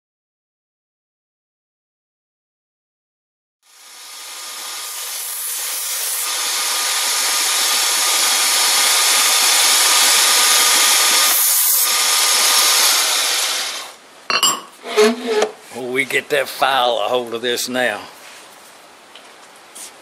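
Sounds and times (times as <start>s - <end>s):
power tool hissing on metal: 3.6s - 14.0s.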